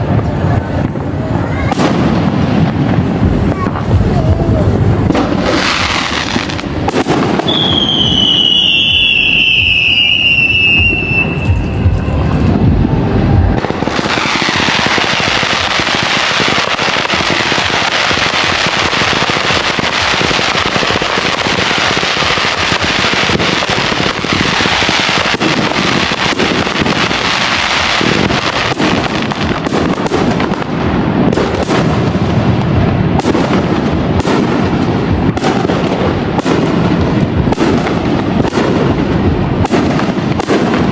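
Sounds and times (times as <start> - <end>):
crackling fireworks: 0.0 - 40.9
fireworks booming bursts: 0.0 - 40.9
sharp fireworks bangs: 0.0 - 40.9
whistling firework shell: 7.4 - 13.5.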